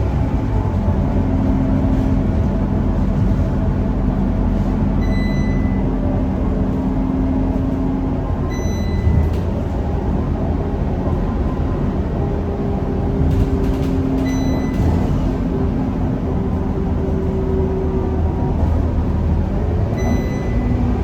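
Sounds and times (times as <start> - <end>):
bus engine running: 0.0 - 21.0
short high beep: 5.0 - 5.8, 20.0 - 20.7.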